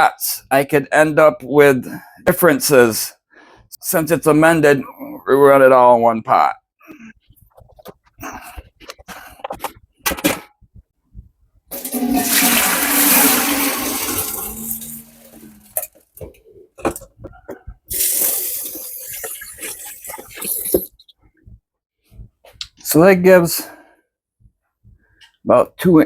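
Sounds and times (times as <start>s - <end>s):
water pouring into pot: 11.7s - 15.9s, 17.9s - 20.7s
pot and containers clinking: 11.7s - 20.9s.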